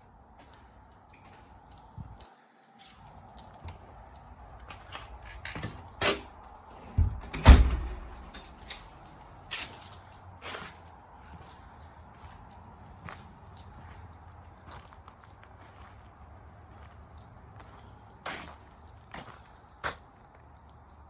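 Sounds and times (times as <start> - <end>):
knocks and thumps: 6.9 - 8.2.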